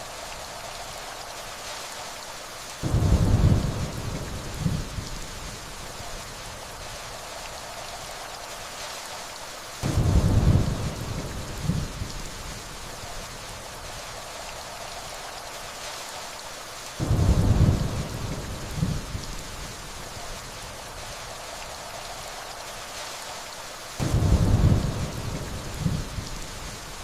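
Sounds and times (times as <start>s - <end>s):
steady rainfall: 0.0s - 27.0s
distant thunder rumbles: 2.8s - 5.6s, 9.8s - 12.5s, 17.0s - 19.7s, 24.0s - 26.8s.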